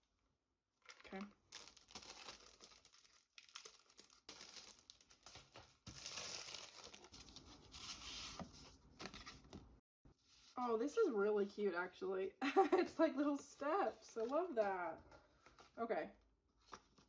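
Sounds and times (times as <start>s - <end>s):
packaging crinkling: 0.8s - 8.0s.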